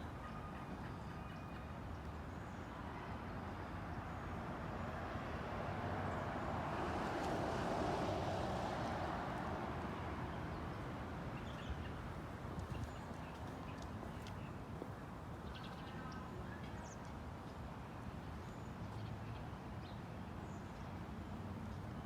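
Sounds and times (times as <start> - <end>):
car passing by: 5.0 - 10.6.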